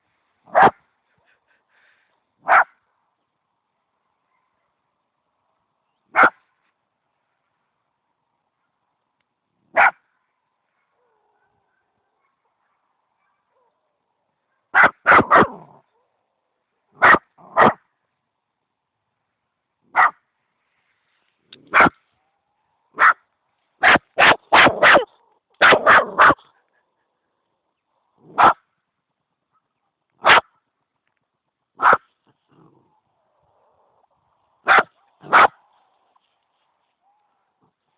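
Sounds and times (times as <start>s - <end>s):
dog barking: 0.5s - 0.8s, 2.4s - 2.8s, 4.2s - 4.8s, 6.1s - 6.4s, 9.7s - 10.1s, 10.7s - 13.9s, 14.5s - 16.2s, 17.0s - 17.8s, 19.9s - 20.2s, 21.7s - 22.0s, 22.9s - 23.2s, 23.8s - 27.1s, 28.2s - 28.6s, 29.5s - 30.6s, 31.8s - 32.8s, 34.6s - 35.6s.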